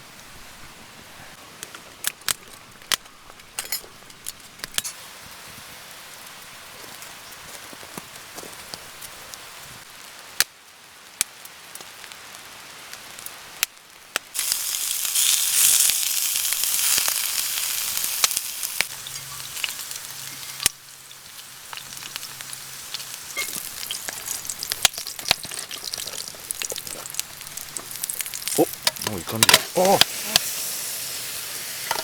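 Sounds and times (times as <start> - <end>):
rice sizzling and hissing: 4.8 - 32.0
sharp crackles: 12.9 - 30.5.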